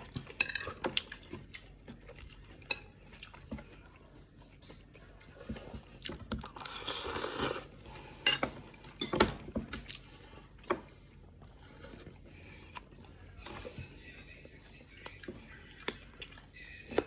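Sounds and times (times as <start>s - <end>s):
cutlery and dishes clinking: 0.3s - 0.9s, 8.2s - 9.8s.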